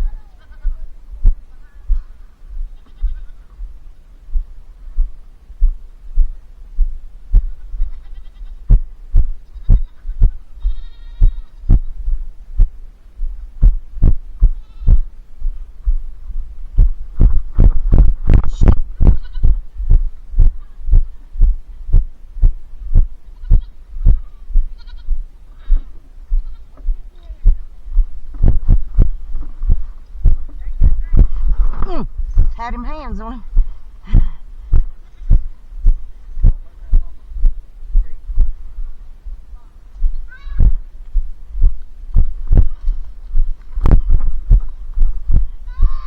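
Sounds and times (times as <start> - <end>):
young goats bleating: 0.0 - 1.0, 1.6 - 3.7, 7.4 - 12.1, 14.3 - 15.2, 18.5 - 21.1, 23.2 - 27.5, 34.8 - 35.7, 40.1 - 40.9, 45.6 - 46.0
loud deep thumps: 4.4 - 25.3, 26.4 - 38.6, 40.0 - 46.0.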